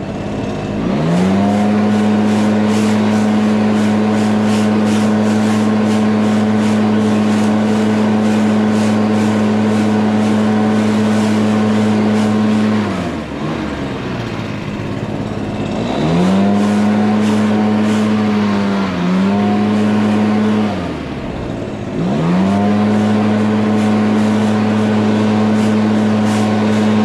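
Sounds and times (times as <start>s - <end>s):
lawn mower engine running: 0.0s - 27.0s.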